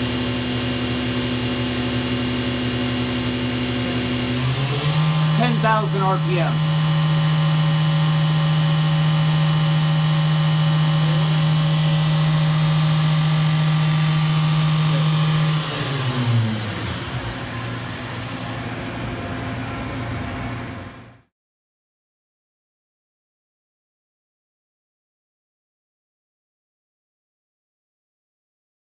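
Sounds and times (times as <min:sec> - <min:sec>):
machine hum: 0:00.0 - 0:21.3
mill spindle whine: 0:00.0 - 0:21.3.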